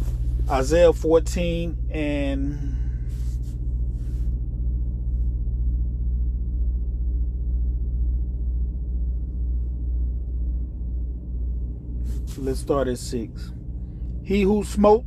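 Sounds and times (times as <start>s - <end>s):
soft rustles: 0.0s - 0.7s, 2.9s - 4.4s, 12.0s - 12.8s
low hum with deep rumble: 0.0s - 15.0s.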